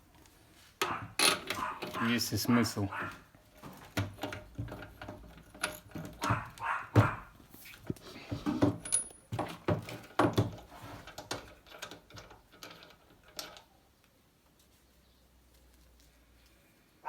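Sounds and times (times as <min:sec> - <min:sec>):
metal parts clattering: 0:03.6 - 0:06.6, 0:07.8 - 0:13.7.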